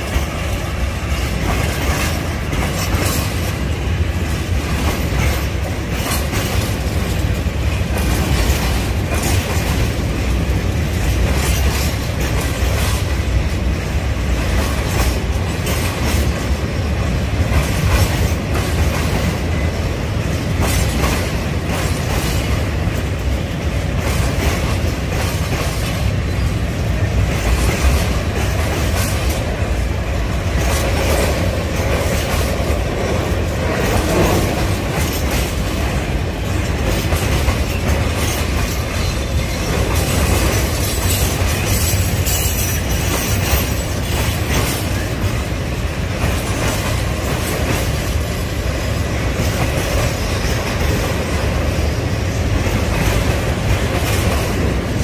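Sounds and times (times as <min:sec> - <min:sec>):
train wheels rumbling on rails: 0:00.0 - 0:55.0
wheels clacking over rail joints: 0:00.0 - 0:55.0.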